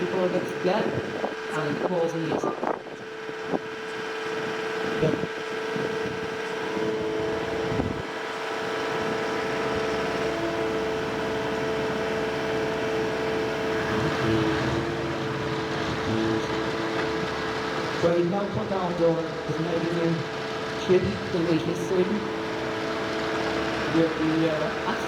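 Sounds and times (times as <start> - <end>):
heavy machinery engine whine: 0.0 - 25.0.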